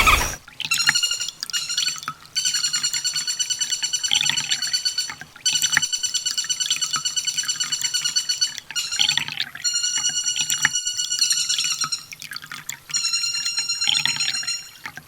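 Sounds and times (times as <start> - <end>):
bird trilling high notes: 13.0 - 14.8.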